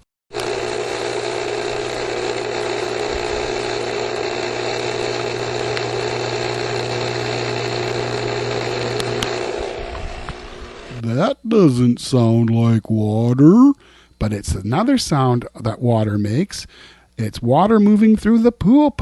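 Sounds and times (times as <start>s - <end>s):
pool pump motor humming: 0.3s - 11.0s.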